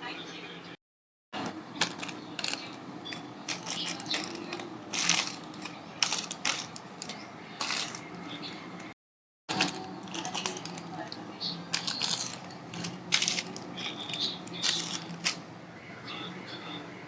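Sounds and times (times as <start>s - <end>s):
plastic snack packets crinkling: 1.8s - 8.2s, 9.5s - 15.4s.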